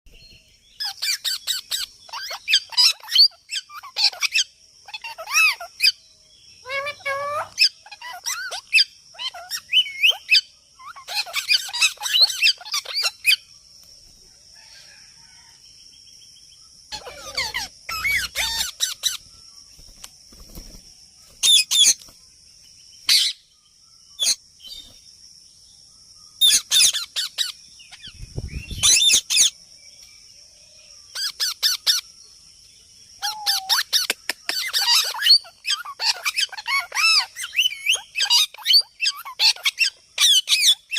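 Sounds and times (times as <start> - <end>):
parrot chirps and squawks: 0.8 - 6.0, 6.6 - 13.4, 16.9 - 19.2, 23.1 - 23.4, 26.4 - 28.1, 31.1 - 32.0, 33.2 - 40.9.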